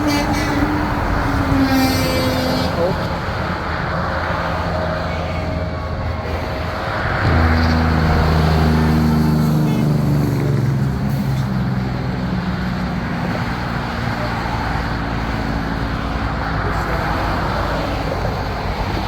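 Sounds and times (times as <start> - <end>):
road traffic noise: 0.0 - 19.0
truck diesel engine passing: 0.0 - 19.0.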